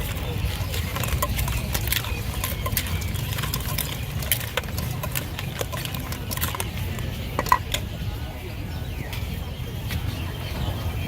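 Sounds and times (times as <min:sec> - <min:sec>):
sharp clicks and clatter: 0:00.0 - 0:07.9.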